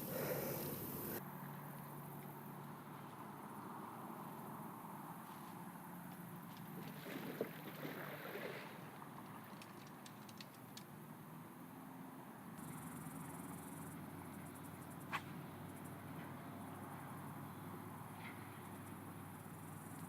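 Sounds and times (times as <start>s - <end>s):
insects chirring: 0.0s - 1.2s, 12.6s - 16.0s, 18.7s - 20.0s.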